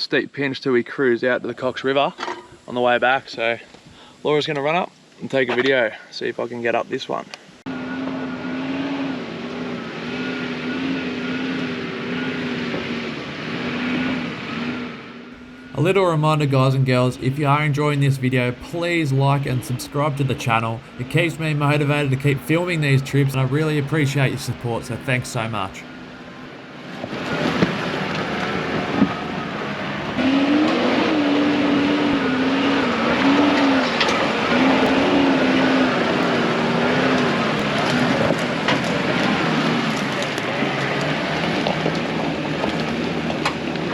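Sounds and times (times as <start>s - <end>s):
engine revving under load: 30.0s - 38.5s.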